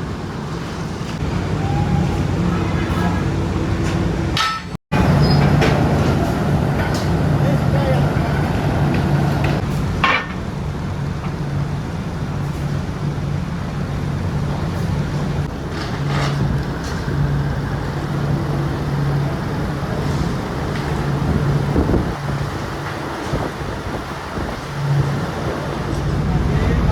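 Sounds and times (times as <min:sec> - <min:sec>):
factory machinery humming: 0:00.0 - 0:26.9
sharp metallic clanks: 0:04.3 - 0:07.2.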